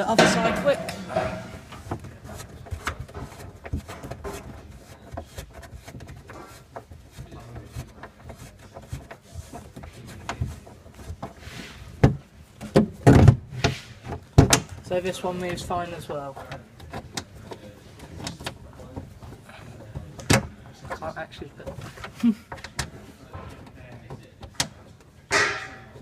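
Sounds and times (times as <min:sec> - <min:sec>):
kayak footrest clicking and rattling: 0:15.5 - 0:26.0.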